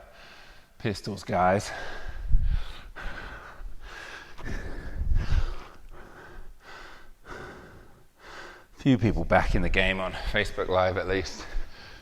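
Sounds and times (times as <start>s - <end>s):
man breathing hard: 0.0s - 0.8s, 1.6s - 8.8s, 11.4s - 12.0s.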